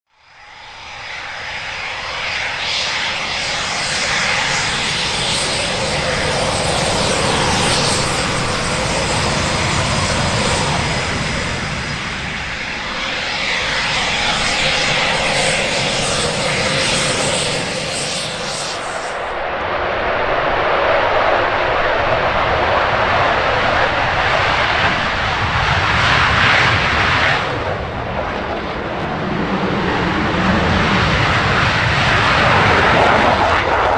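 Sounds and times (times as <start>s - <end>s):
aircraft engine roar: 0.1s - 33.9s.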